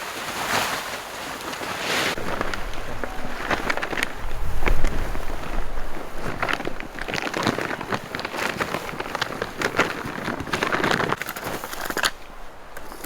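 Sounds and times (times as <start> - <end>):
hay rustling and crackling: 0.0 - 13.0.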